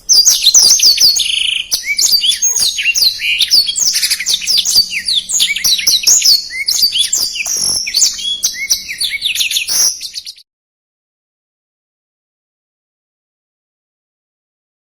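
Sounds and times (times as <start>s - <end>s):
bird singing rapid high notes: 0.0s - 10.4s.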